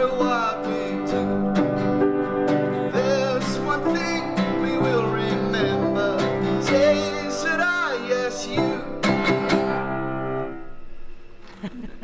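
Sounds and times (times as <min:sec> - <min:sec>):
person singing: 0:00.0 - 0:01.8, 0:02.9 - 0:09.9
acoustic guitar: 0:00.0 - 0:12.0.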